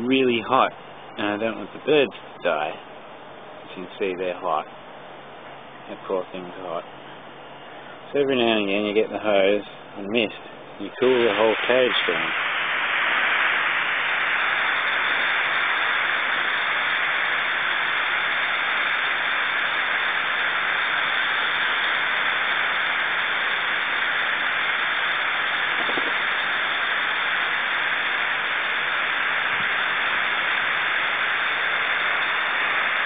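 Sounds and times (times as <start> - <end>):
garden hose spraying mist: 10.9 - 33.0.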